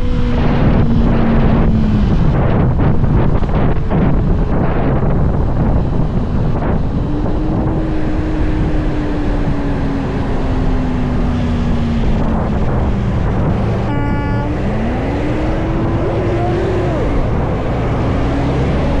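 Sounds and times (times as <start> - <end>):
motorcycle engine: 0.0 - 19.0
wind rush on microphone: 0.0 - 19.0
short beep: 13.8 - 15.1.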